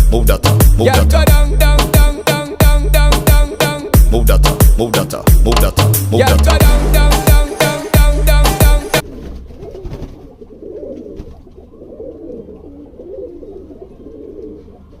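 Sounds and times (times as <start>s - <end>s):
music with heavy beat: 0.0s - 9.0s
pigeons cooing: 9.0s - 15.0s.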